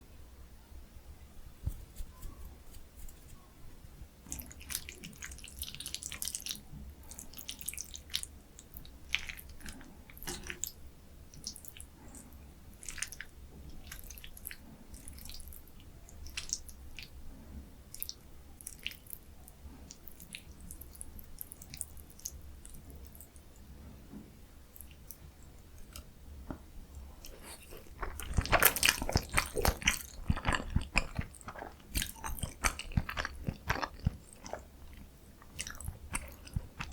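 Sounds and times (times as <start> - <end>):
crunchy bites: 27.2 - 36.9
wet mouth chewing sounds: 27.2 - 36.9.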